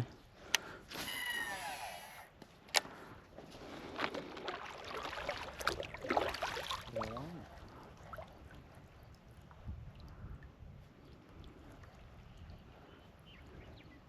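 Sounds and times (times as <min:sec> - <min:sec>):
water splashing around kayak: 0:03.3 - 0:13.6.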